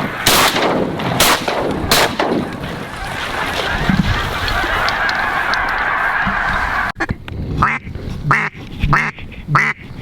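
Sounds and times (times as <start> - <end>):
ducks calling in chorus: 1.9 - 7.0, 7.6 - 9.9
loud duck quacks: 7.6 - 9.9.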